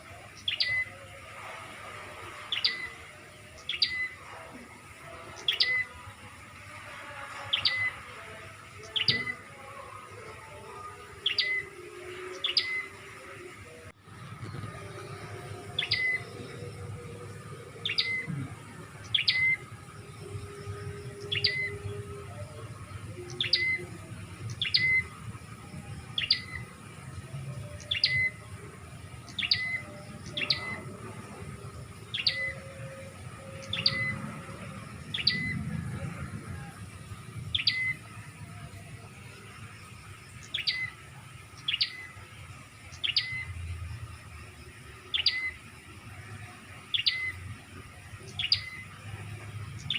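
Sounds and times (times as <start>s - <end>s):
bird call: 2.5s - 4.5s, 11.2s - 13.0s, 14.4s - 17.1s, 17.8s - 25.1s, 27.6s - 28.4s, 29.3s - 30.9s, 32.0s - 35.8s, 37.5s - 38.1s, 45.1s - 45.6s, 48.3s - 48.9s.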